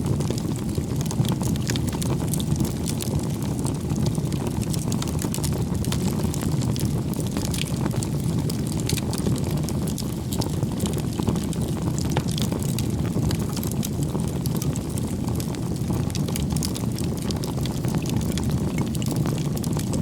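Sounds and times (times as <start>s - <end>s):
bonfire flames rushing: 0.0s - 20.0s
wood crackling and popping: 0.0s - 20.0s.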